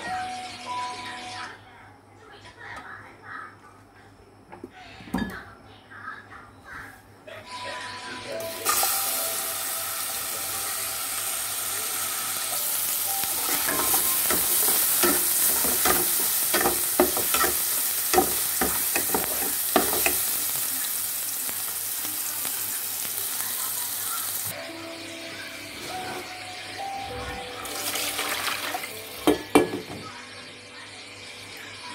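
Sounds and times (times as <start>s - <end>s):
aromatics sizzling in hot oil: 7.8s - 30.2s
ladle scraping and knocking a wok: 13.4s - 20.2s.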